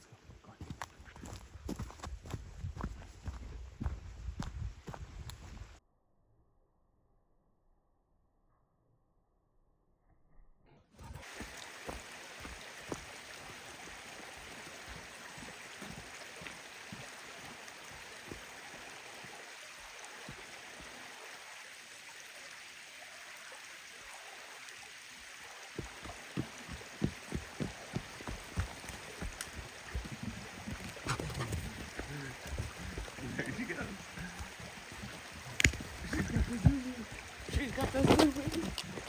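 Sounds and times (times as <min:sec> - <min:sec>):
creek water rushing: 0:11.0 - 0:39.0.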